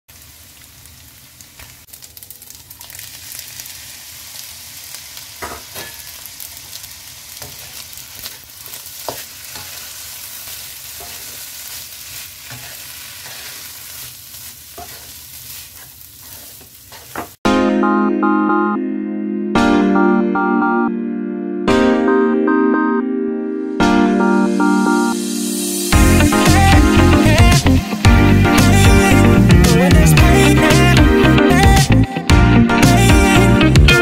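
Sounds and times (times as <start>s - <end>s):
food sizzling in a wok: 0.1s - 17.4s, 25.1s - 31.9s
spatula scraping and tapping pan: 7.4s - 9.9s, 11.0s - 11.5s, 12.5s - 13.7s, 14.7s - 17.4s
loud music: 17.5s - 34.0s.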